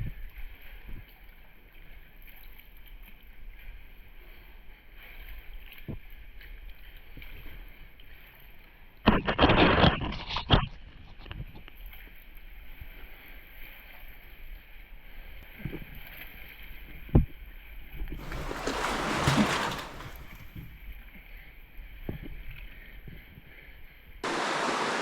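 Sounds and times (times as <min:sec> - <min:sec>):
knocks and bumps: 0:18.2 - 0:20.6
water splashing: 0:18.2 - 0:20.7, 0:24.2 - 0:25.0.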